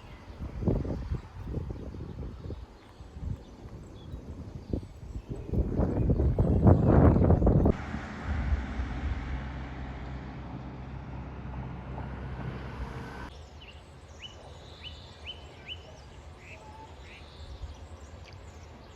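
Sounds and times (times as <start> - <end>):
vehicle engine passing by: 7.4 - 13.3.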